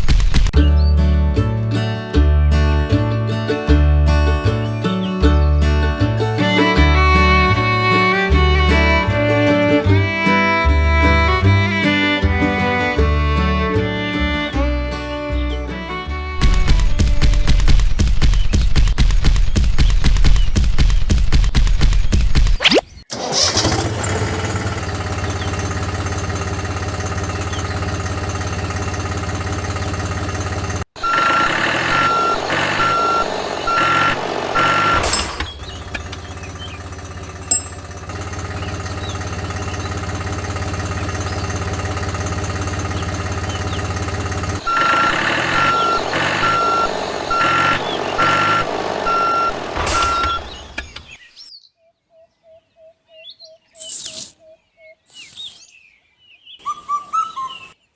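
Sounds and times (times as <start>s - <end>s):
vehicle engine running: 0.6s - 18.4s, 23.1s - 50.9s
reversing beeper beeps: 31.0s - 35.2s, 44.6s - 50.6s.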